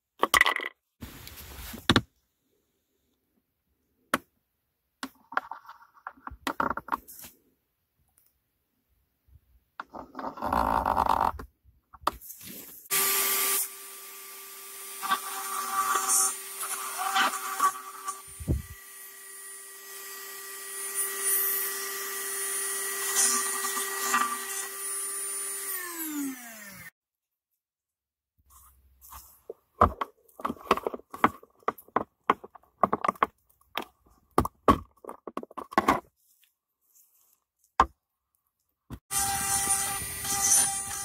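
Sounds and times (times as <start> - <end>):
electric motor humming: 23.2 - 26.9
sharp clicks and knocks: 29.5 - 36.1.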